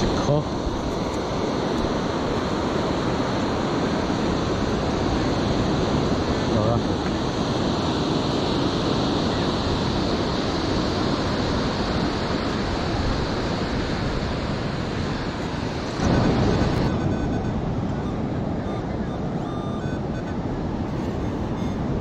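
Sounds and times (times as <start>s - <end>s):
surf washing onto beach: 0.0s - 18.6s
wind on microphone: 0.0s - 22.0s.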